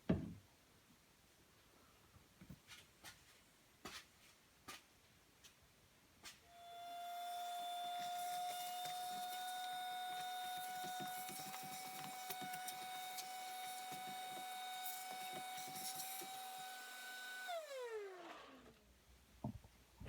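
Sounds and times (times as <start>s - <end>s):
vacuum cleaner motor whine: 6.5s - 18.9s.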